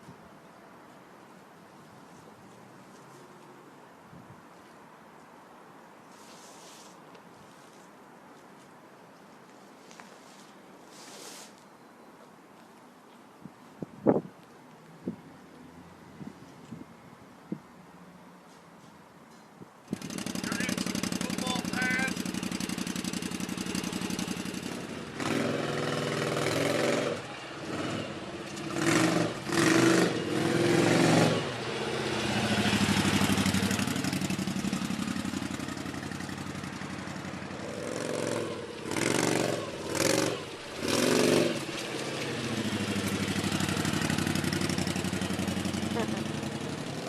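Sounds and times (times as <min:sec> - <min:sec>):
motorcycle engine revving: 0:19.9 - 0:47.0.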